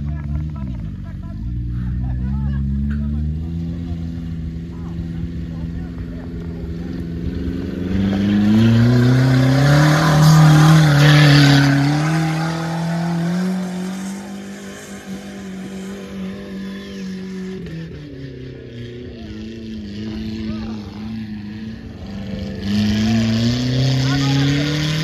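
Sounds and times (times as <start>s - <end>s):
engine revving hard: 6.6s - 18.1s, 19.1s - 25.0s.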